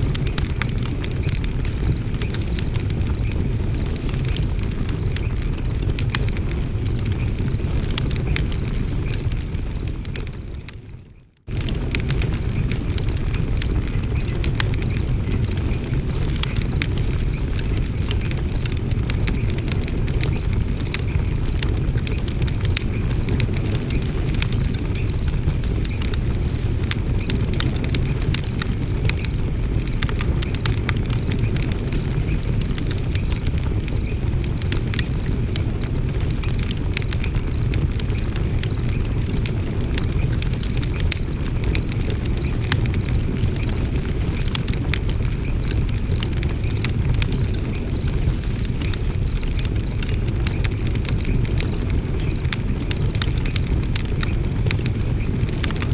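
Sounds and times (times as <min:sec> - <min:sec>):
low fire rumble: 0:00.0 - 0:55.9
wood fire crackling and popping: 0:00.0 - 0:55.9.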